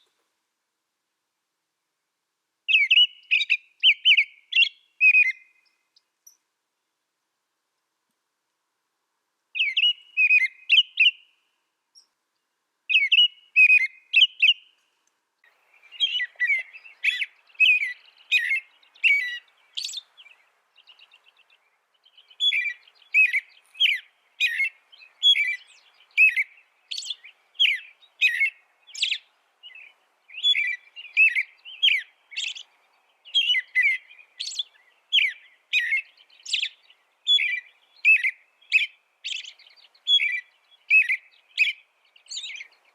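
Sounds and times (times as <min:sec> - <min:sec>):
finch chirping: 0:09.6 - 0:11.2, 0:12.9 - 0:14.6, 0:15.7 - 0:42.9.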